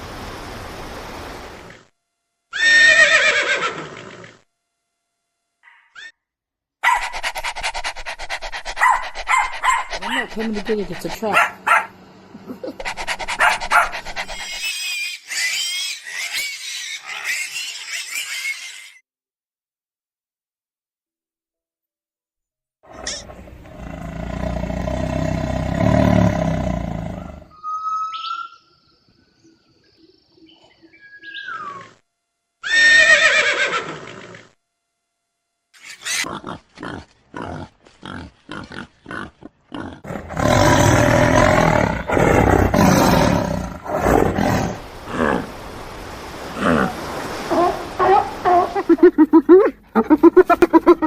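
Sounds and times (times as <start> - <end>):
noisy animal calling: 7.1 - 19.0, 31.2 - 32.0, 35.8 - 43.3
animal roaring call: 23.0 - 27.5, 36.2 - 45.6, 46.5 - 49.1.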